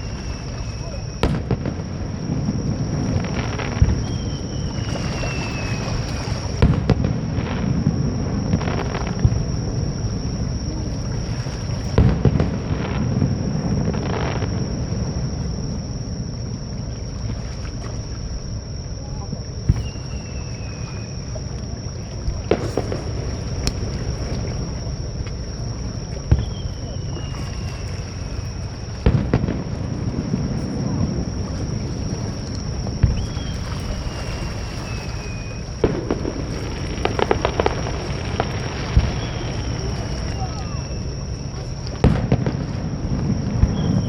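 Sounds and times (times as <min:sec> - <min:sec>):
fireworks booming and cracking: 0:00.0 - 0:17.4, 0:18.0 - 0:44.0
falling firework whistles: 0:00.0 - 0:18.6, 0:19.6 - 0:21.4, 0:22.3 - 0:44.0
shore waves: 0:00.0 - 0:44.0
crowd noise: 0:19.0 - 0:44.0.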